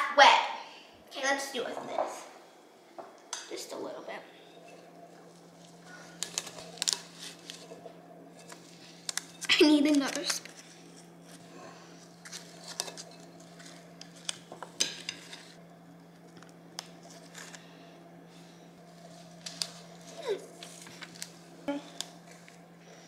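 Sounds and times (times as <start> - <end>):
spoons clinking and scraping bowl: 6.2 - 10.7, 12.2 - 15.6.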